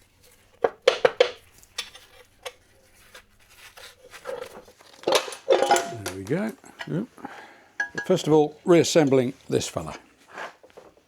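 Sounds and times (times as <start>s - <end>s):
small metal fasteners clinking: 4.2s - 10.0s.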